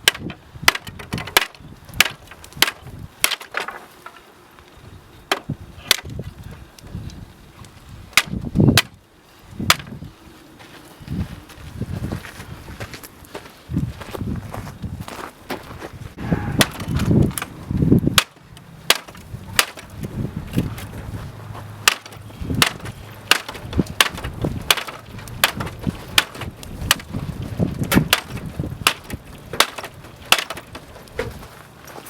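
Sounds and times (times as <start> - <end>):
footsteps crunching: 9.8 - 32.0
low rumble: 16.1 - 26.1.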